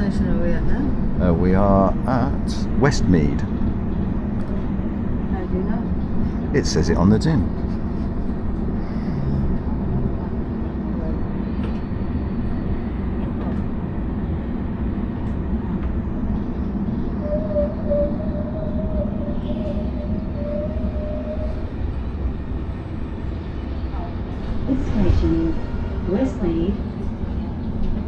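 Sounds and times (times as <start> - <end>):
train rumbling on rails: 0.0 - 28.0
thin whine: 17.0 - 22.4.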